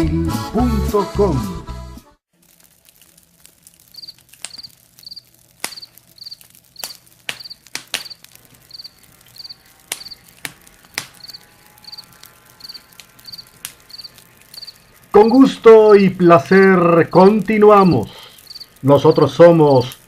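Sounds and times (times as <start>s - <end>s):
campfire crackling: 2.3s - 20.0s
crickets chirping: 3.9s - 15.6s, 18.1s - 20.0s.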